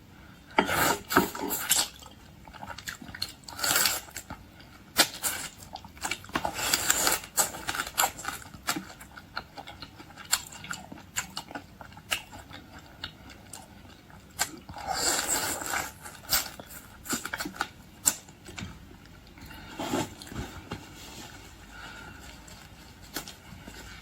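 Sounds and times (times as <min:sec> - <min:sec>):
rustling and smacking: 0:19.6 - 0:24.0.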